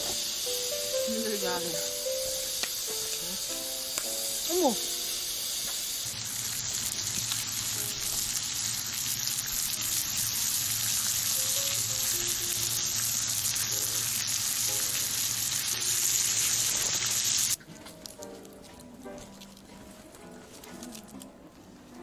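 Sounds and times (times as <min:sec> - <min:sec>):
food sizzling on a griddle: 0:00.0 - 0:17.6.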